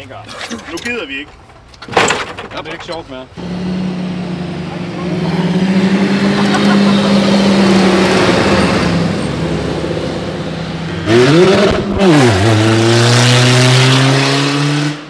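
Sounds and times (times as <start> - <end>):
car engine revving hard: 3.4 - 15.0.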